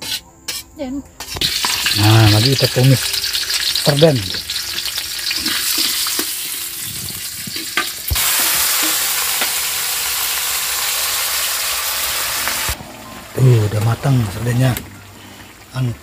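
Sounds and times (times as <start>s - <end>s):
fish sizzling in hot oil: 1.3s - 16.0s.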